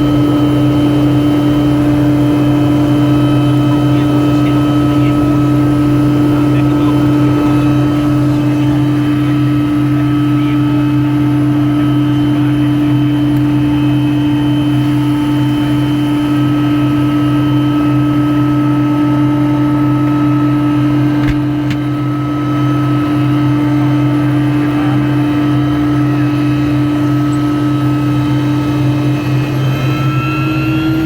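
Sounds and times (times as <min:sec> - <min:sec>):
helicopter running: 0:00.0 - 0:31.0.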